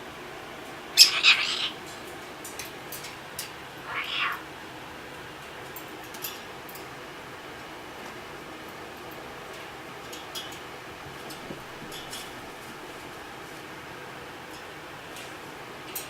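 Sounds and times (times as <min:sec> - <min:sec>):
cat meowing: 0:01.0 - 0:01.8, 0:03.8 - 0:04.5.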